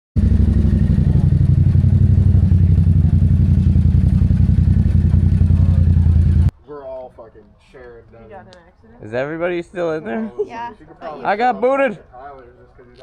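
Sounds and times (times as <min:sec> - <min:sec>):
motorcycle engine running: 0:00.2 - 0:06.5.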